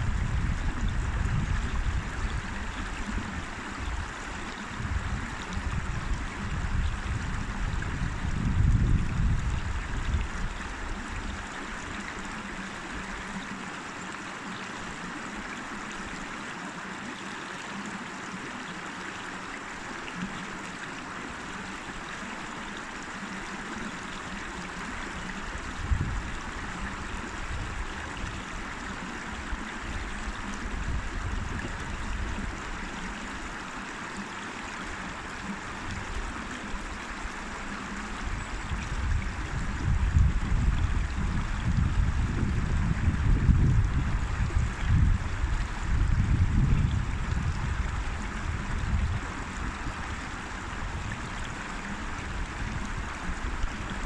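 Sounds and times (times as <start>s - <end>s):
river water flowing over rocks: 0.0s - 54.0s.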